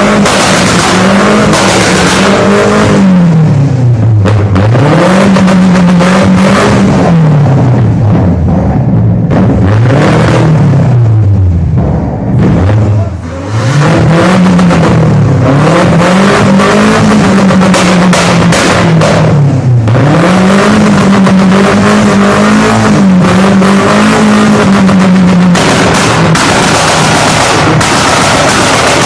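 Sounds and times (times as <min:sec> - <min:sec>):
exhaust crackling pops: 0:00.0 - 0:06.0, 0:14.4 - 0:20.0, 0:24.2 - 0:29.0
car engine revving: 0:00.0 - 0:29.0.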